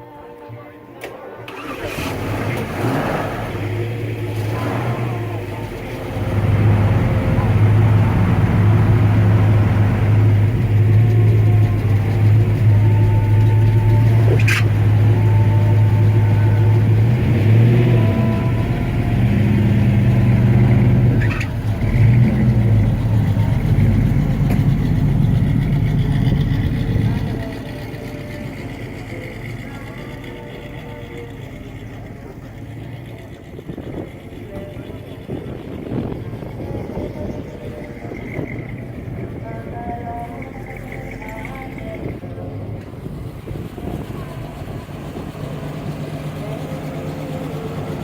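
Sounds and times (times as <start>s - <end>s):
car engine rumbling: 1.1s - 48.0s.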